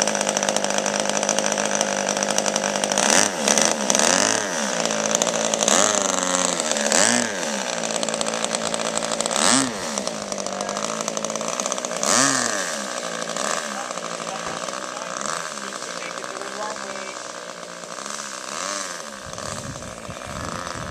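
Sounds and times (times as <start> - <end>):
model airplane engine swooping: 0.0 - 20.9.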